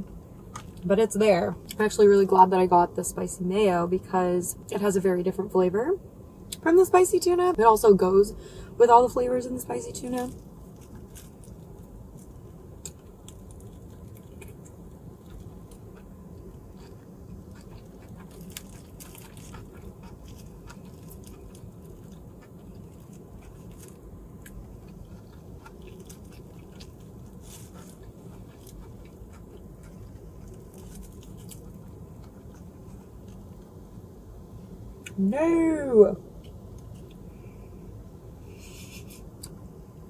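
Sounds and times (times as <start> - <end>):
steady low hum: 0.0 - 40.0
wet chewing: 10.1 - 33.7.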